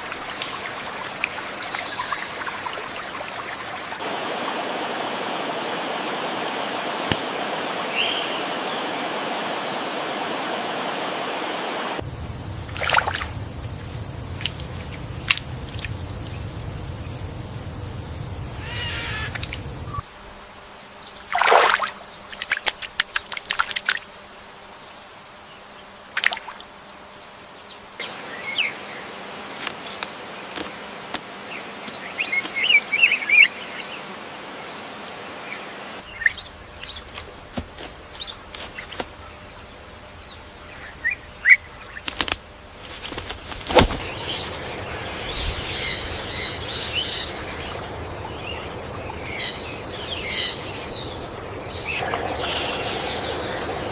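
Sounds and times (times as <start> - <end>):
loud falling bird call: 12.0 - 20.0
soft background hiss: 12.0 - 21.2
bird chirps and calls: 13.3 - 20.0.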